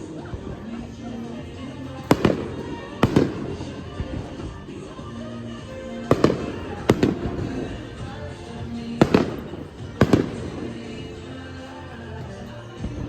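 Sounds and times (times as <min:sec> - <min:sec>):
fireworks shells bursting: 0:00.0 - 0:13.0
music: 0:00.0 - 0:13.0.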